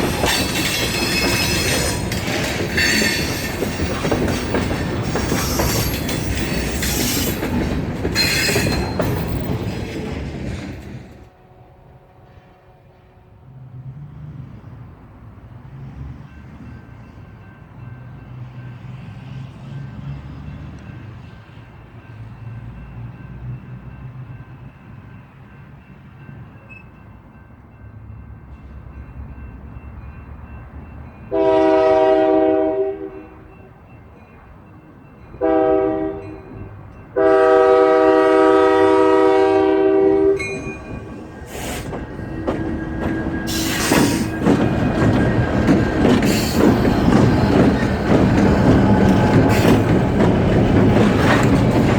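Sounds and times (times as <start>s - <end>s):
train wheel clatter: 0.0s - 11.3s, 40.3s - 51.9s
train engine rumble: 0.0s - 51.9s
locomotive air horn blasts: 31.3s - 33.4s, 35.4s - 36.3s, 37.2s - 40.5s.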